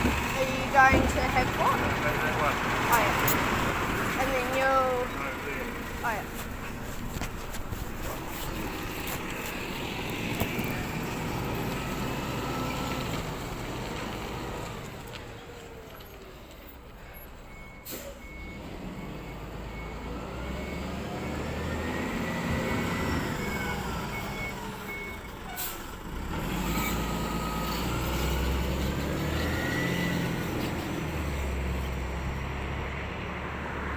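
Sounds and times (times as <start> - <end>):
truck engine revving: 0.0 - 15.2, 18.3 - 33.9
reversing beeper: 17.3 - 25.3.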